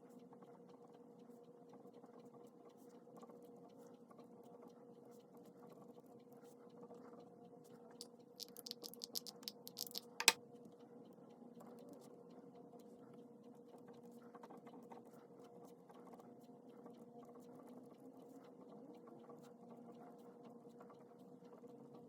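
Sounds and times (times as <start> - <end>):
sharp click: 8.4 - 10.4.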